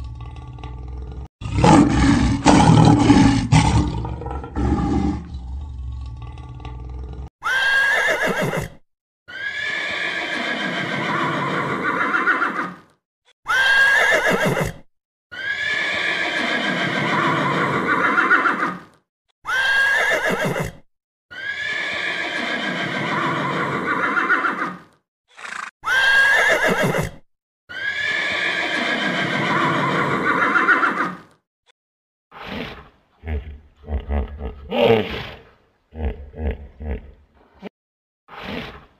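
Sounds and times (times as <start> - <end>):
horses whinnying: 7.4 - 12.8, 13.5 - 18.9, 19.5 - 31.3.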